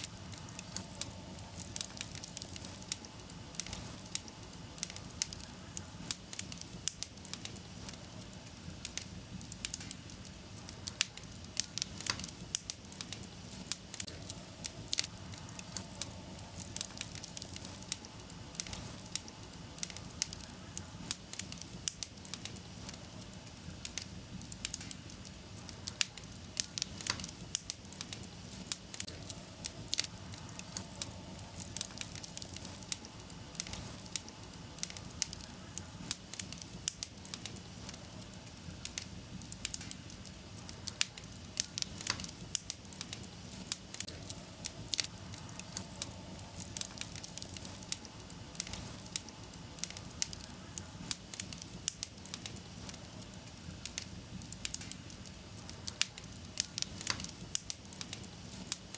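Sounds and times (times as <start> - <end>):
wood fire crackling and popping: 0.0 - 58.9.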